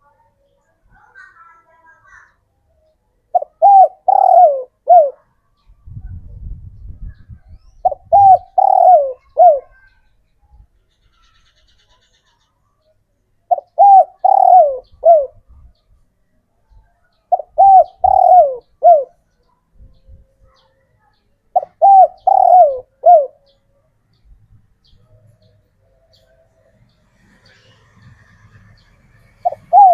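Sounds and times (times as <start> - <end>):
dove cooing: 3.3 - 5.3, 7.8 - 9.9, 13.5 - 15.4, 17.3 - 19.2, 21.5 - 23.6, 29.4 - 29.9.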